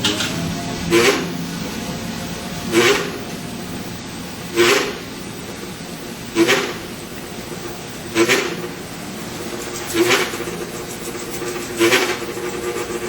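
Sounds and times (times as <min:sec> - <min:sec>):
elevator car travelling: 0:00.0 - 0:09.6.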